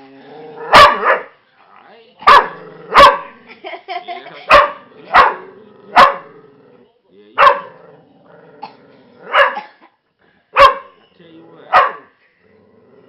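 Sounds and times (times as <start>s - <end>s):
dog barking: 0.7s - 1.3s, 2.2s - 3.4s, 4.5s - 6.3s, 7.4s - 7.8s, 9.3s - 9.7s, 10.6s - 11.0s, 11.7s - 12.1s.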